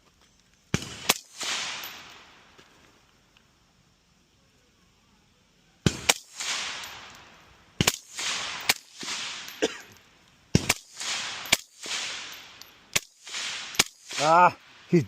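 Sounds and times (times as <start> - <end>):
gunshots with rolling echo: 5.9 - 7.1, 7.8 - 9.6, 10.6 - 14.6.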